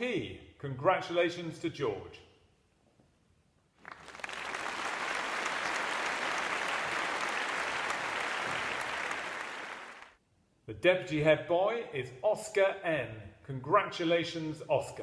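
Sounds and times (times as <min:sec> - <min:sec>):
crowd applauding: 0:03.8 - 0:10.2.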